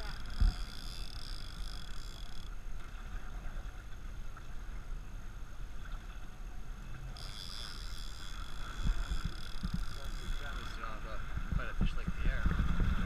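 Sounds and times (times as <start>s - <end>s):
boat engine running: 0.0s - 2.7s, 7.0s - 13.0s
water noise: 0.0s - 13.0s
wind noise: 8.7s - 13.0s.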